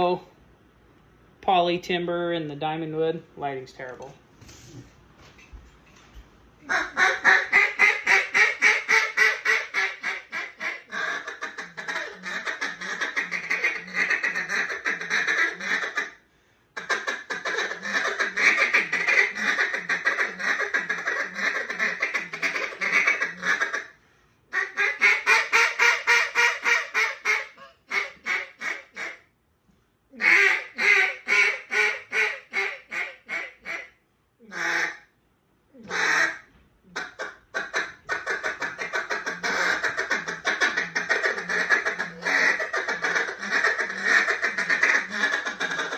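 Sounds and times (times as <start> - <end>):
duck call rapid quacks: 6.6 - 16.2, 16.8 - 29.2, 30.2 - 33.9, 34.5 - 35.1, 35.9 - 45.9.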